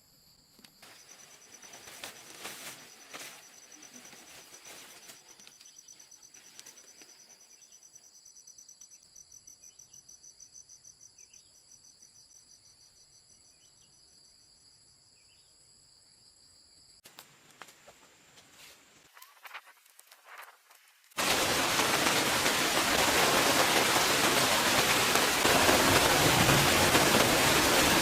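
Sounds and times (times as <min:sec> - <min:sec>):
insects trilling: 0:00.2 - 0:17.0.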